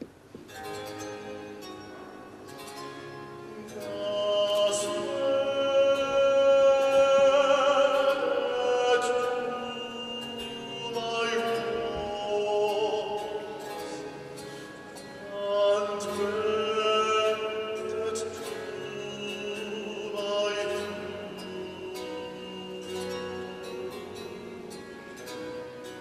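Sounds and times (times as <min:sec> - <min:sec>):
baritone singing with vibrato: 0:00.6 - 0:26.0.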